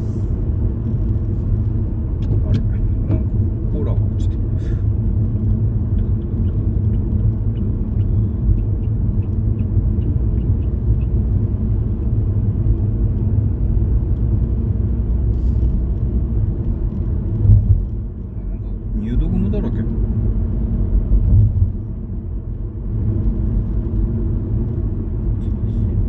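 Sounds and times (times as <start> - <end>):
car driving heard from inside: 0.0 - 26.0
faint light ticks: 12.6 - 18.3.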